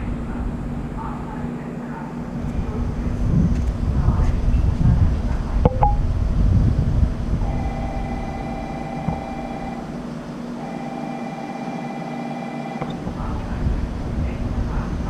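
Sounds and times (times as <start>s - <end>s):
low train drone: 0.0s - 15.0s
train horn blasts: 7.5s - 9.8s.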